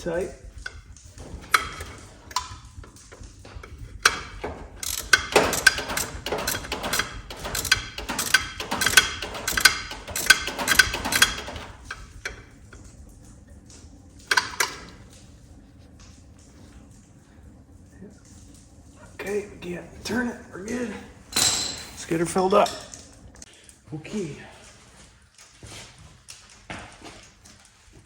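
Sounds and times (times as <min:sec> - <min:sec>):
hand ratchet clicking: 0:01.4 - 0:12.4.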